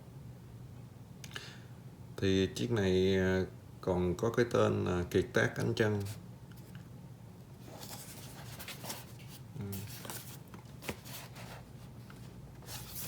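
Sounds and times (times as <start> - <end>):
low steady hum: 0.0 - 13.0
cardboard box handled: 7.6 - 13.0.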